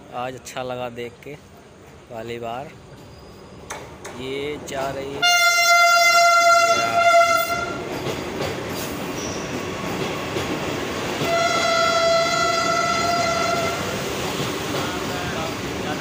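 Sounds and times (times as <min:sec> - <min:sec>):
train wheels rumbling: 0:01.4 - 0:16.0
train horn blast: 0:05.2 - 0:07.8, 0:11.2 - 0:13.9.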